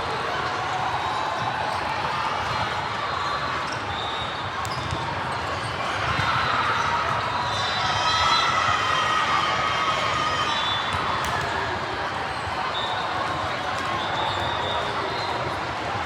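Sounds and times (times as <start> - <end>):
balls bouncing and being hit: 10.9 - 11.6.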